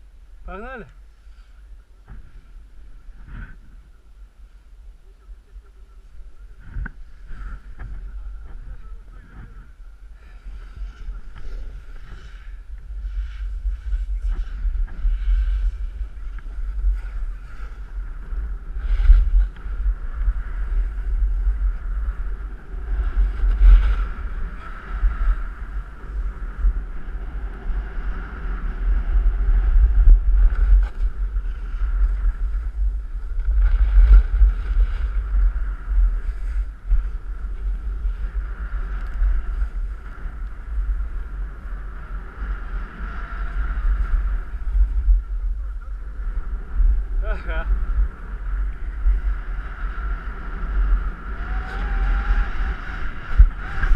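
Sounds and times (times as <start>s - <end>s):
wind buffeting microphone: 0.0s - 53.9s
skis scraping on snow: 9.4s - 27.0s.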